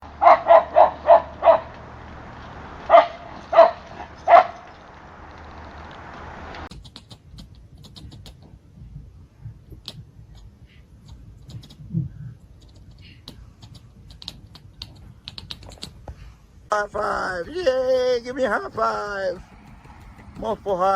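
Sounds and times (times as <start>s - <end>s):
dog barking: 0.2s - 1.8s, 2.9s - 4.7s
steady hiss: 1.3s - 7.3s
faint scattered clicks: 1.7s - 8.6s, 9.7s - 16.2s.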